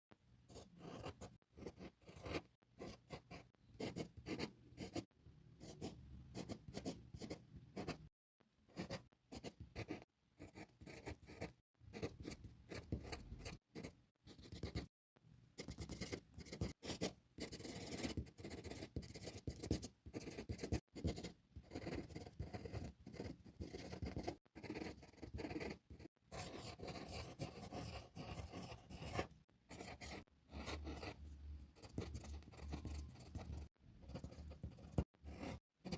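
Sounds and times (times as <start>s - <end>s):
drawing tool scratching paper: 0.5s - 5.1s, 15.6s - 31.2s, 31.8s - 35.9s.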